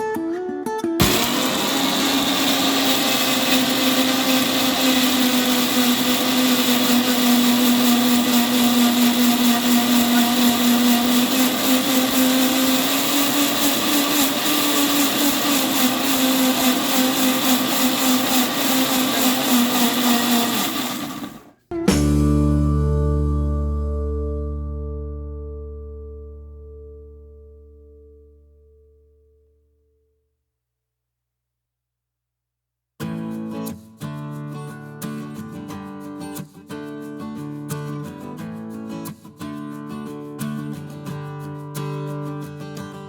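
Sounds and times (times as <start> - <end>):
electric mixer grinder running: 1.0 - 21.5.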